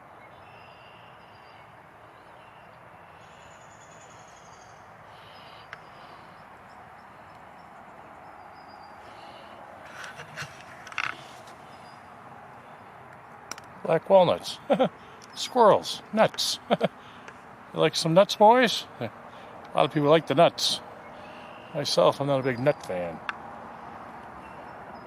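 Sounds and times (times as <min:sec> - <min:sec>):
faint high bird chirps: 0:00.2 - 0:09.6
brief crackles: 0:09.8 - 0:11.6
background hiss: 0:13.8 - 0:22.8.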